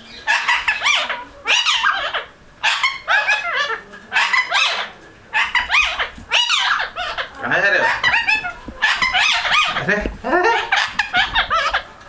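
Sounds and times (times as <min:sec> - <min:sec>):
parrot chattering and squawking: 0:00.1 - 0:12.0.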